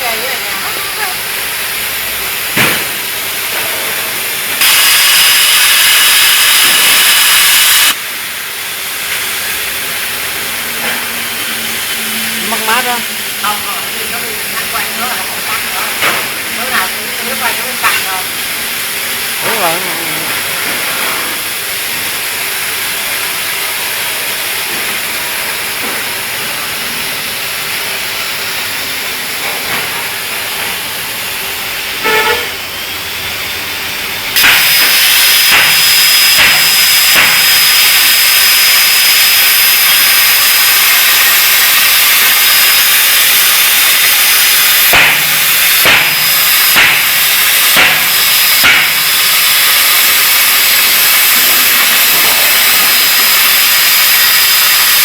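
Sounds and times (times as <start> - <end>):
plasma cutter hissing: 0.0 - 55.0
thin high whine: 1.8 - 8.3, 28.7 - 32.6, 33.4 - 55.0
crackles and pops: 34.4 - 52.0.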